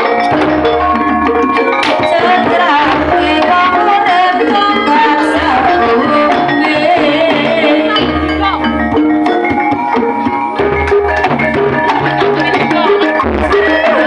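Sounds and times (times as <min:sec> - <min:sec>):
hand drums: 0:00.0 - 0:14.0
metallophones ringing a melody: 0:00.0 - 0:14.0
person singing: 0:01.6 - 0:08.3, 0:11.8 - 0:14.0.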